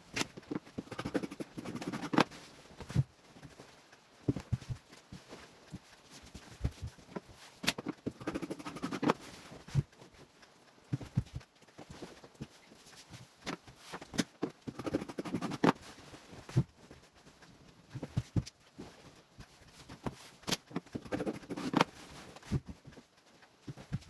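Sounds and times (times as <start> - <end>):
tools tapping and knocking: 4.3 - 10.1, 10.9 - 17.1, 17.9 - 23.0.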